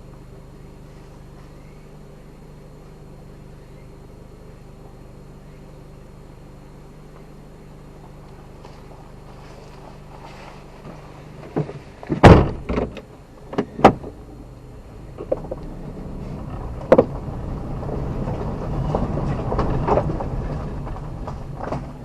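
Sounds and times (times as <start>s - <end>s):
vehicle rumble: 0.0s - 22.0s
sharp knocks and clunks: 10.8s - 14.2s, 16.4s - 17.3s.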